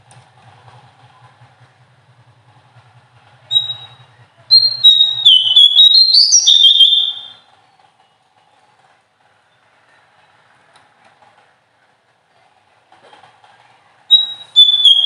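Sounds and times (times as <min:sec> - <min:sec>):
small songbird whistling: 0:03.5 - 0:07.4, 0:14.1 - 0:15.0.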